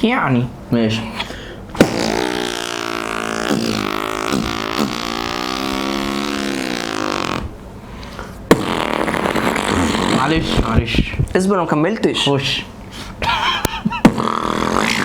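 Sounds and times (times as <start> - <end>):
man imitating motorcycle engine: 1.7 - 7.6, 8.5 - 10.8, 13.4 - 15.0.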